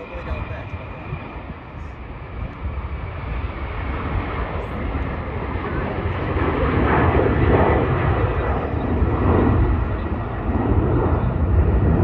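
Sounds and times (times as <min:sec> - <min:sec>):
jet airliner engines: 0:00.0 - 0:12.0.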